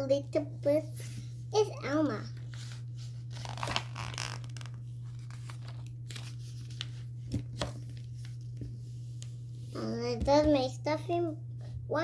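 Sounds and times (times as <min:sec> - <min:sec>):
low electrical hum: 0:00.0 - 0:12.0
paper rustling: 0:02.4 - 0:09.4.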